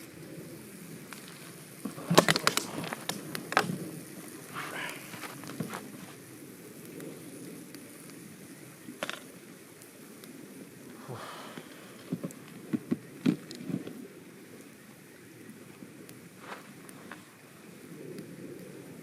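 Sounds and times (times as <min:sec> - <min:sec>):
campfire low rush: 0:00.0 - 0:19.0
fire crackle: 0:00.0 - 0:19.0.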